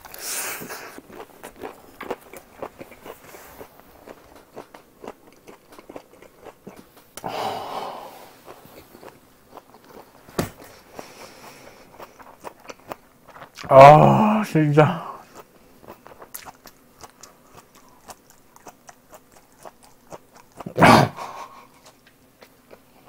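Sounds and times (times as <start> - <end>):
wet chewing and mouth clicks: 0.0 - 7.3, 8.4 - 13.7, 15.2 - 20.8
loud breath: 7.2 - 8.4.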